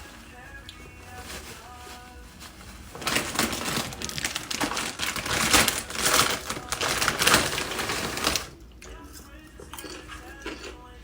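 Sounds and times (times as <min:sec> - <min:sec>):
paper wrapper crinkling: 0:00.0 - 0:08.6.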